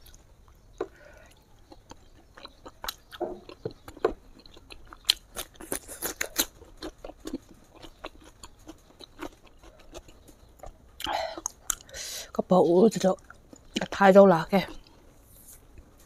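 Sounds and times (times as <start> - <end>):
wet chewing mouth clicks: 0.0 - 12.0.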